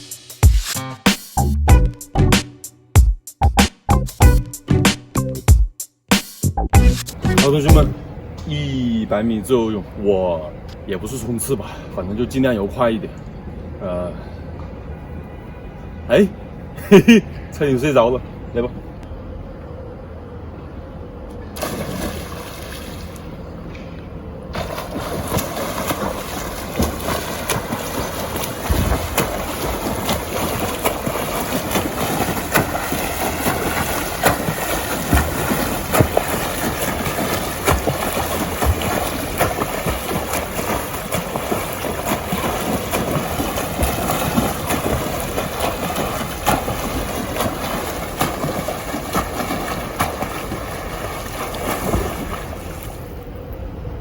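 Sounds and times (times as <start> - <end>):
water splashing from swimmer: 21.6 - 23.3, 24.5 - 53.2.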